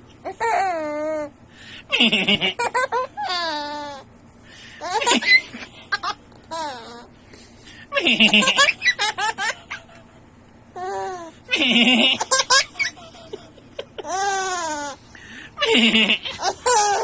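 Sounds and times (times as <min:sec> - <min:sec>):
baby laughing: 0:01.9 - 0:04.1, 0:04.8 - 0:07.1, 0:07.9 - 0:10.1, 0:10.8 - 0:15.0, 0:15.6 - 0:17.0.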